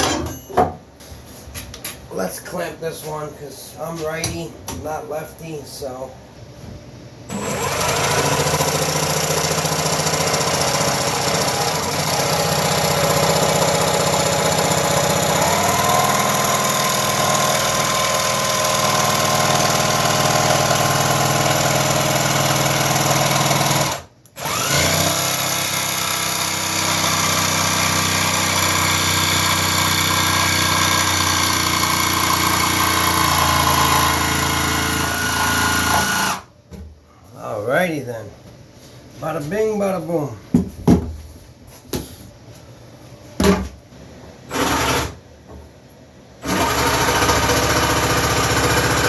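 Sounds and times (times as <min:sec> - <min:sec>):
jigsaw cutting wood: 0:07.3 - 0:36.5, 0:44.5 - 0:45.2, 0:46.4 - 0:49.0.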